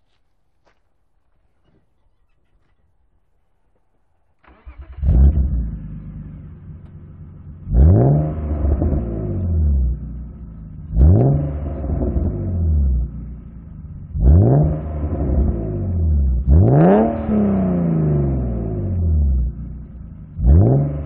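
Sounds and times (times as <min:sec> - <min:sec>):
car engine idling and revving: 0:03.6 - 0:21.0
engine cranking: 0:04.4 - 0:07.2.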